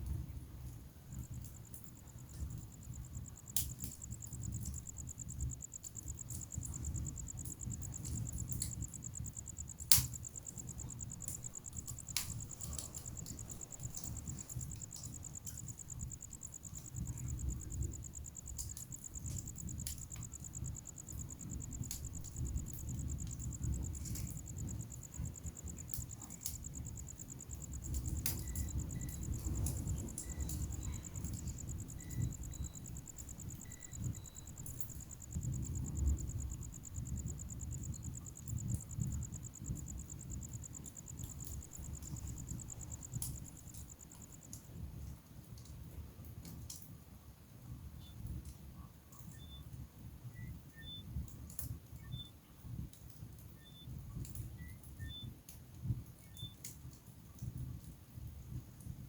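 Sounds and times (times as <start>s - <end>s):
wood fire crackling: 0.0s - 52.0s, 52.6s - 59.0s.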